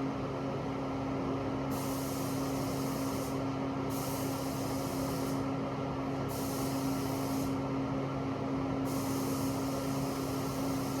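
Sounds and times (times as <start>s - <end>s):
paint spray gun hissing: 1.7s - 5.4s, 6.3s - 7.6s, 8.9s - 11.0s.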